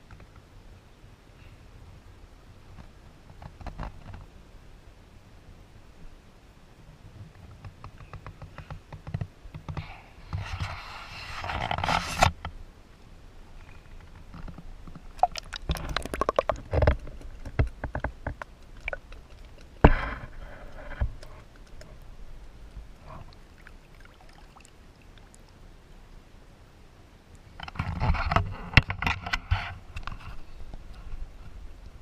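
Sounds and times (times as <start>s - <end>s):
water splashing: 15.0s - 25.6s.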